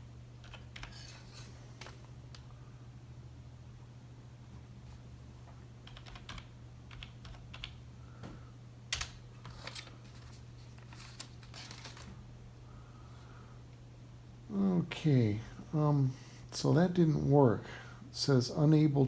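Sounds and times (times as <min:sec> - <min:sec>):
steady low hum: 0:00.0 - 0:19.0
typing on computer keyboard: 0:00.4 - 0:01.2, 0:05.8 - 0:07.8.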